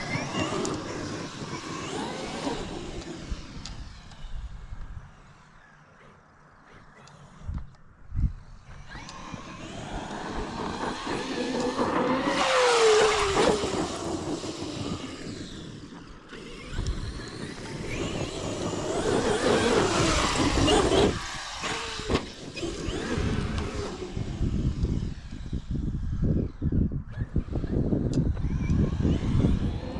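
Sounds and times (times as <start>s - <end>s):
off-road vehicle engine revving: 0.0s - 3.9s, 8.8s - 25.0s
tire and road rumble: 0.0s - 29.9s.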